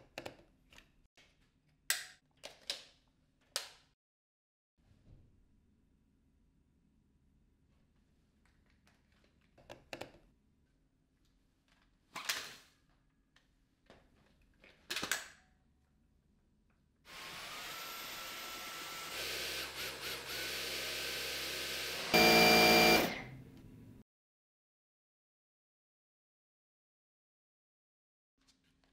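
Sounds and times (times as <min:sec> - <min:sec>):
vacuum cleaner motor whining: 0:17.1 - 0:23.4.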